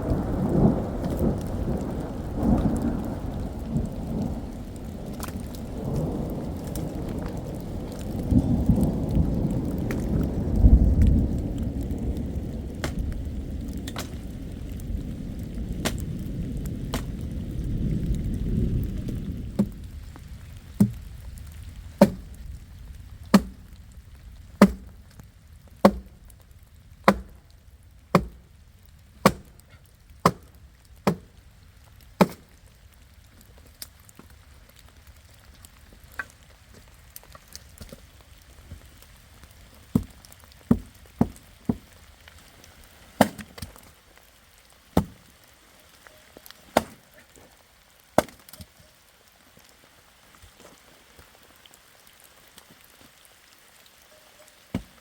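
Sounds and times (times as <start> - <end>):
thunder rumbling: 0.0 - 29.6
light rain patter: 0.0 - 55.0
sharp knocks: 22.0 - 22.3, 23.4 - 23.6, 24.6 - 24.9, 25.8 - 26.2, 27.1 - 27.4, 28.2 - 28.4, 29.2 - 29.5.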